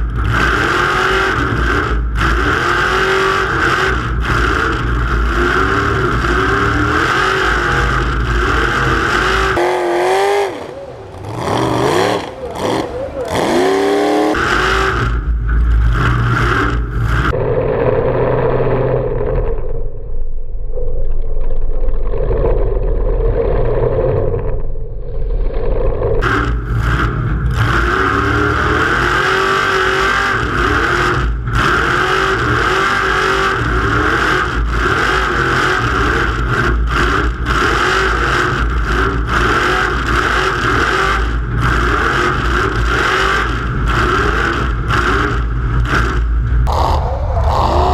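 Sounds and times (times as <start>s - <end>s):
race truck engine revving: 0.0s - 19.9s, 25.8s - 47.9s
rushing noise: 46.1s - 47.9s.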